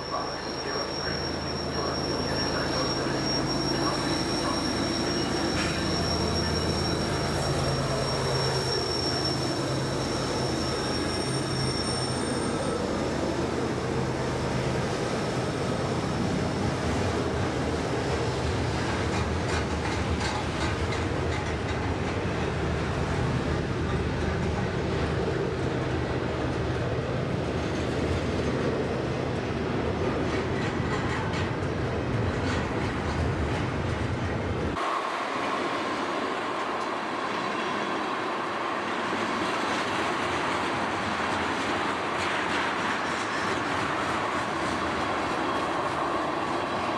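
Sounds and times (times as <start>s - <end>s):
high wheel squeals: 0.0s - 13.6s
train wheels rumbling on rail: 0.0s - 46.9s.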